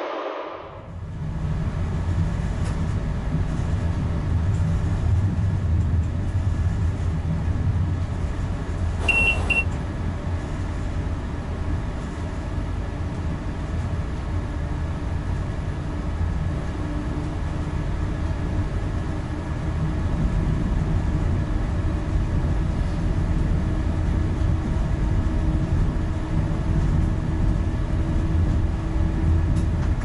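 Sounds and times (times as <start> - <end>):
train wheels and traction rumbling: 0.0 - 30.0
brief high squeal: 9.0 - 9.6.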